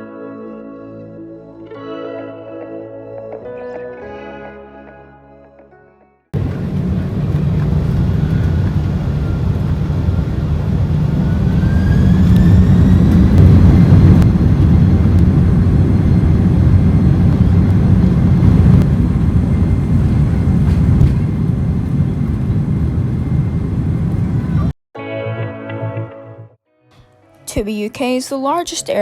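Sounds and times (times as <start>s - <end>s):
jet engines spooling up: 6.4s - 24.7s.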